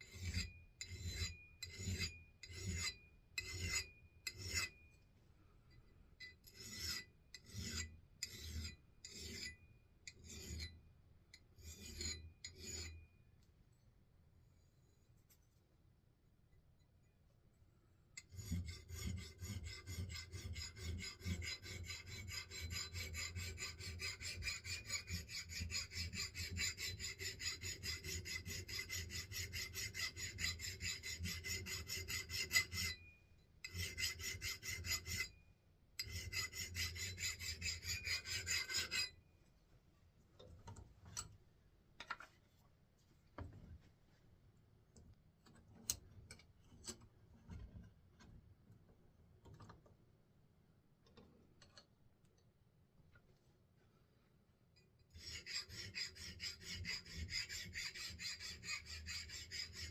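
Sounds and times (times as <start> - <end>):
file scraping on axe head: 0.0 - 4.9, 5.8 - 10.8, 11.4 - 13.1, 18.2 - 35.4, 36.0 - 39.2, 55.1 - 59.9.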